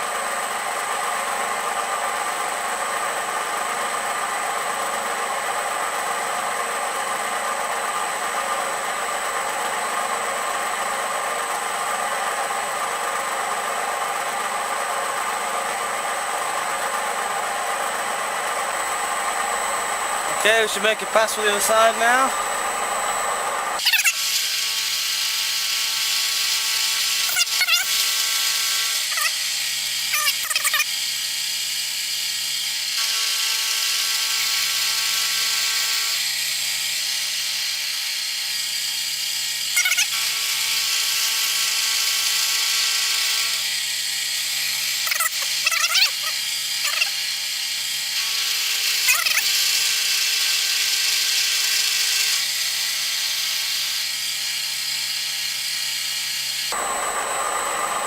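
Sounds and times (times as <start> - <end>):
milling machine motor whine: 0.0 - 58.0
cutter squealing in metal: 18.8 - 22.8, 23.8 - 31.0, 32.6 - 58.0.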